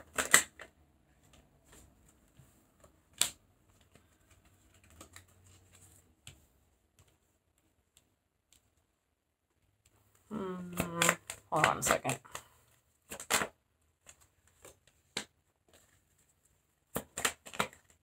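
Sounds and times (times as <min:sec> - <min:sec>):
cards clicking and tapping on table: 0:13.1 - 0:15.9.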